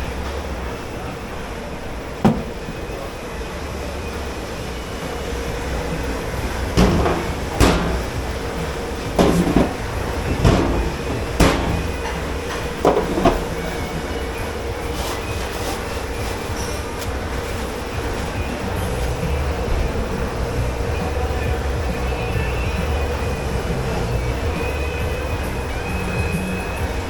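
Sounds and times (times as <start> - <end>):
low machine hum: 1.9 - 14.9
dishes and pots clattering: 5.5 - 14.0.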